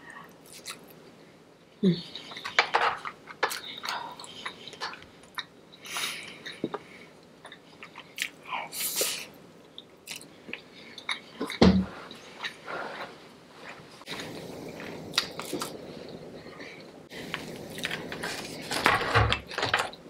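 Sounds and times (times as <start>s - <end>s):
person chewing food: 2.1s - 8.4s, 9.6s - 13.1s, 14.0s - 20.0s.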